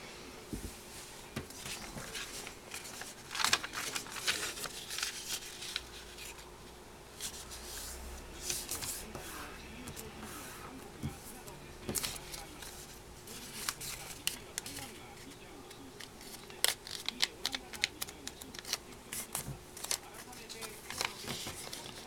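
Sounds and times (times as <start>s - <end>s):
paper rustling and crinkling: 0.6s - 6.5s, 7.2s - 22.0s.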